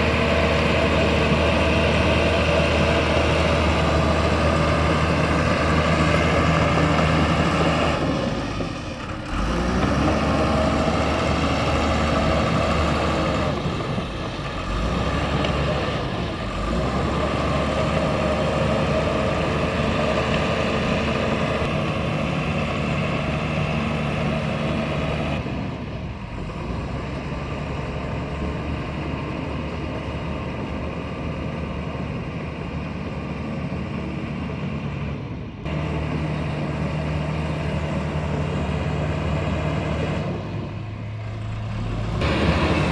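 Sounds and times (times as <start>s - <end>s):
bulldozer diesel engine running: 0.0s - 42.9s.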